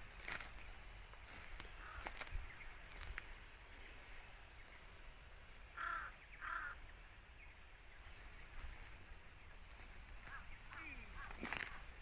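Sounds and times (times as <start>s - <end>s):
outdoor background noise: 0.0s - 12.0s
bird cawing: 1.7s - 2.3s, 5.7s - 6.9s, 10.2s - 11.9s.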